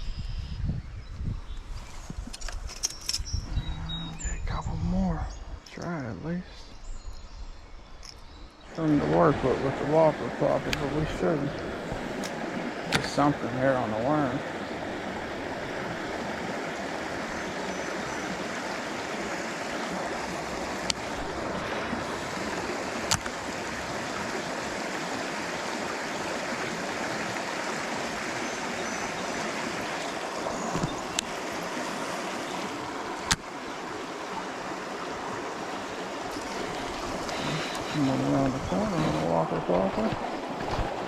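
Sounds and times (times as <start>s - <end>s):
creek water running: 8.7s - 41.0s.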